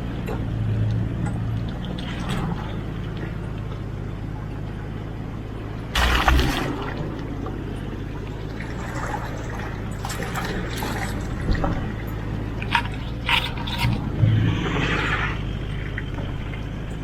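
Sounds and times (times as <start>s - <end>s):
vehicle engine running low revs: 0.0s - 17.0s
water splashing: 5.7s - 17.0s.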